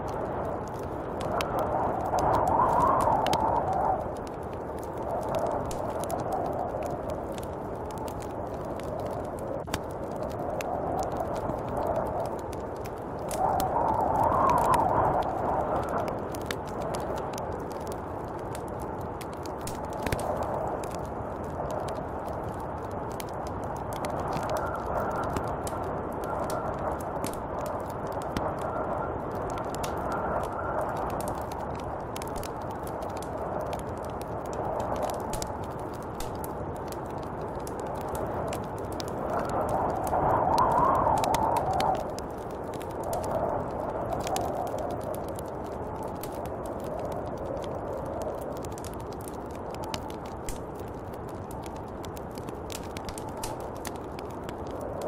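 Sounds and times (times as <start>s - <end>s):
small sharp ticks: 0.0s - 55.0s
snowstorm wind blowing: 0.0s - 55.0s
faint wind whistle: 13.2s - 16.1s, 39.3s - 42.1s.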